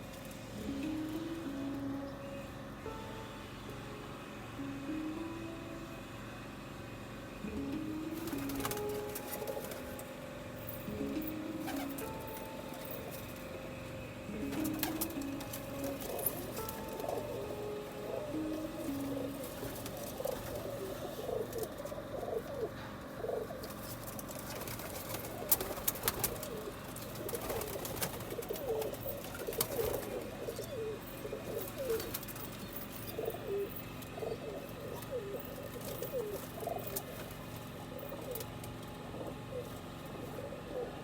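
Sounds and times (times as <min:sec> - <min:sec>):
pigeons cooing: 0:07.6 - 0:41.0.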